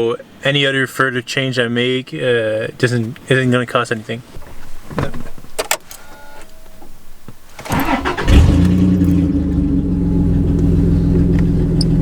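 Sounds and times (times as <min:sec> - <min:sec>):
truck engine starting and idling: 0:07.6 - 0:12.0.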